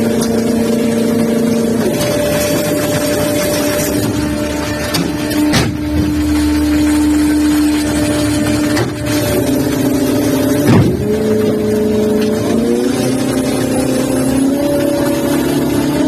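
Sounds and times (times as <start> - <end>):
machinery humming: 0.0 - 16.0
wash of noise: 0.0 - 16.0
sharp knocks: 4.9 - 6.4, 10.6 - 11.2.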